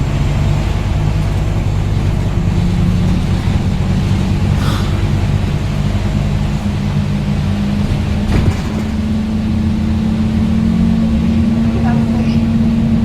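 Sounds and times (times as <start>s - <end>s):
bus engine drone: 0.0s - 13.0s
brief clatter: 7.9s - 9.1s.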